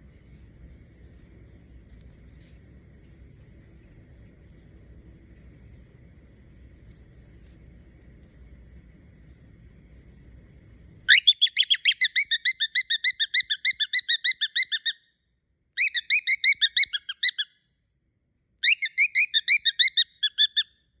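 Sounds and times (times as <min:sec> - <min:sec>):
cockatiel chirping: 0:11.1 - 0:15.0, 0:15.8 - 0:17.5, 0:18.6 - 0:20.7.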